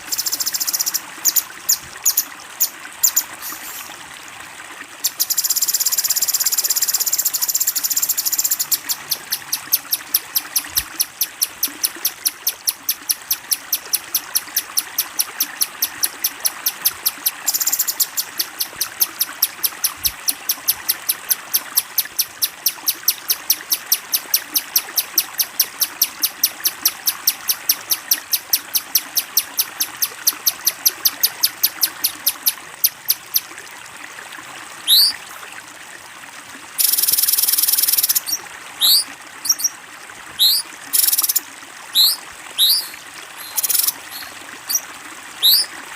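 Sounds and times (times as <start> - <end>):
trickle of running water: 0.0 - 45.9
bird chipping: 7.0 - 15.2, 15.8 - 21.2, 34.9 - 35.2, 36.8 - 39.7, 40.4 - 41.4, 42.0 - 44.8, 45.4 - 45.7
harsh buzzing bird call: 34.9 - 35.2, 36.8 - 39.7, 40.4 - 41.4, 42.0 - 44.8, 45.4 - 45.7
rising whistled bird notes: 34.9 - 35.2, 36.8 - 39.7, 40.4 - 41.4, 42.0 - 44.8, 45.4 - 45.7.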